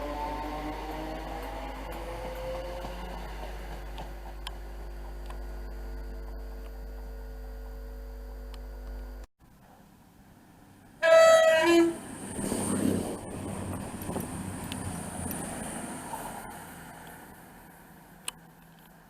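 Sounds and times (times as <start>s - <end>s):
steady hum with held tones: 4.2s - 9.3s
two-tone train horn: 11.0s - 12.0s.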